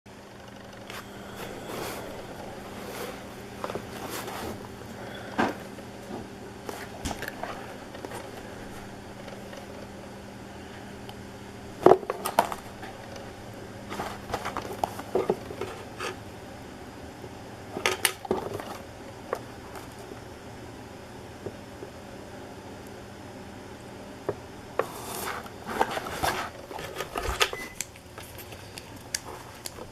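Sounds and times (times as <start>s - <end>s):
low hum: 0.1s - 17.8s
cardboard box and foil packs handled: 13.9s - 16.2s, 24.8s - 29.9s.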